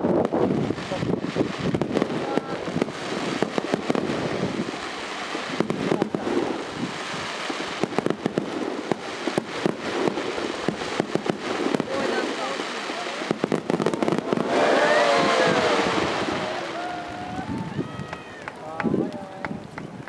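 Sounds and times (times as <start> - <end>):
fireworks bangs and crackles: 0.0 - 20.0
crowd voices: 11.8 - 20.0.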